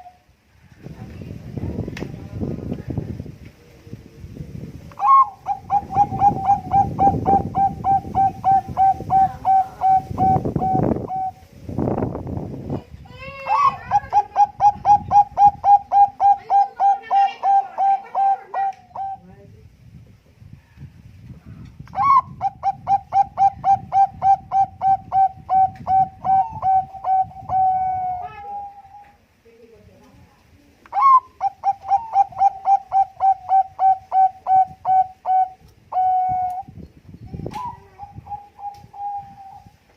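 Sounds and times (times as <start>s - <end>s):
dove cooing: 5.0s - 11.4s, 13.5s - 19.2s, 22.0s - 29.2s, 31.0s - 36.7s, 37.6s - 39.7s.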